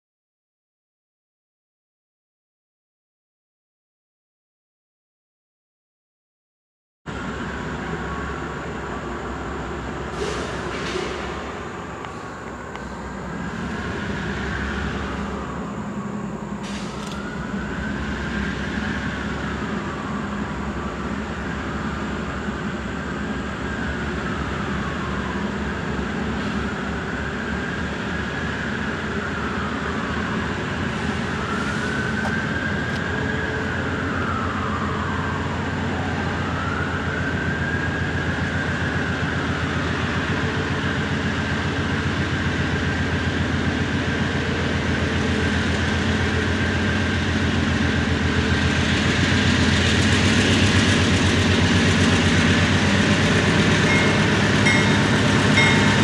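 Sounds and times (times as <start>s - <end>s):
train rumbling on rails: 7.1s - 56.0s
siren wailing: 13.2s - 41.2s, 52.0s - 56.0s.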